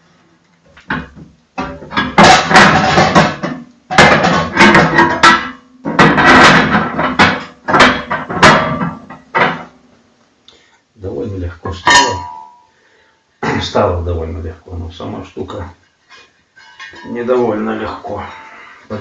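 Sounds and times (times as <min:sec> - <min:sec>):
cast iron parts clanking: 0:00.7 - 0:09.8, 0:11.7 - 0:12.7, 0:16.1 - 0:19.0.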